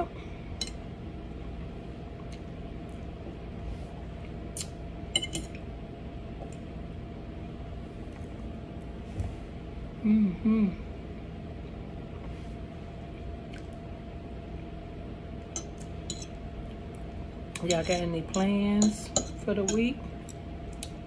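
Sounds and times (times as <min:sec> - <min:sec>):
low background hum: 0:00.0 - 0:21.0
utensils clinking on dishes: 0:05.2 - 0:05.6, 0:15.6 - 0:16.4, 0:17.6 - 0:20.0.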